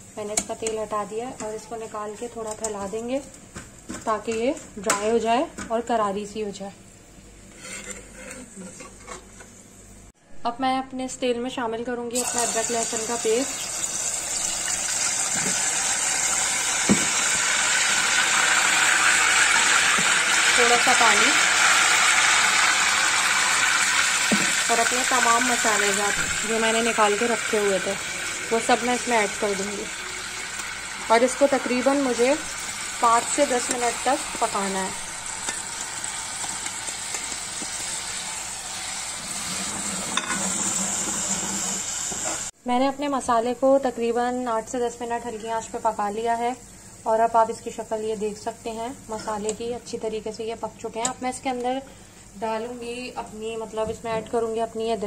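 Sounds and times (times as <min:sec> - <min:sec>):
paste sizzling in oil: 0:12.2 - 0:42.5.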